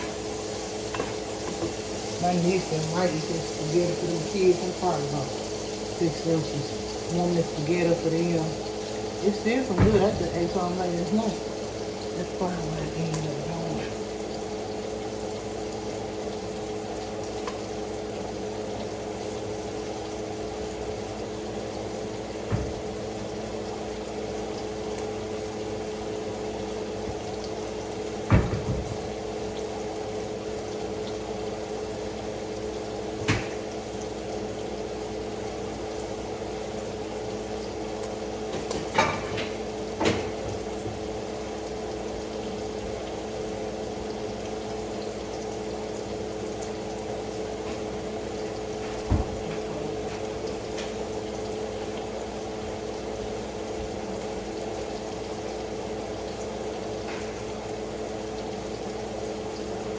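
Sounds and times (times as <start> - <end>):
pots and utensils knocking: 0.9 - 1.8, 38.5 - 40.4.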